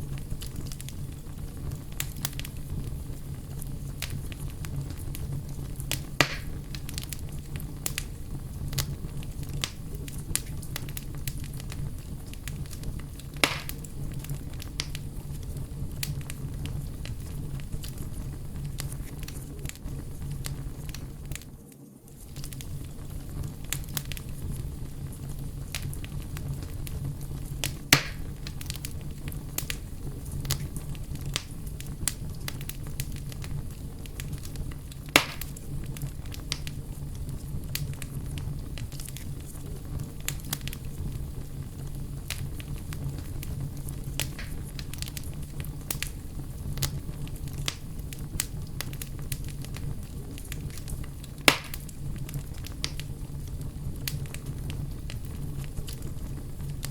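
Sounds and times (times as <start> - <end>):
bonfire crackling: 0.0 - 56.9
loud fire pops: 0.0 - 56.9.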